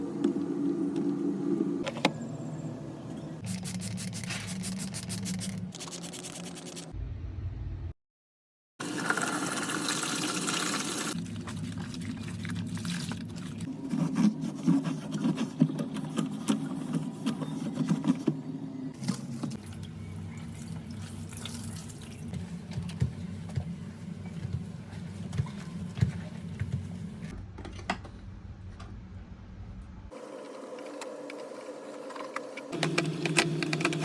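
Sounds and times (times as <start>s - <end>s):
low hum: 6.9s - 8.0s
water running and splashing: 9.1s - 13.7s.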